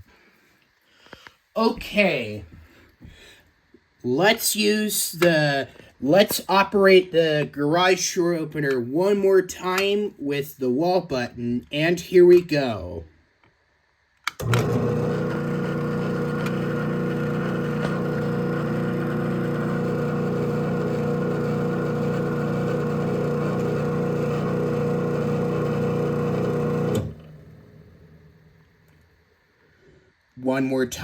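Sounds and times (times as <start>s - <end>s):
garage door opener motor humming: 14.4s - 28.4s.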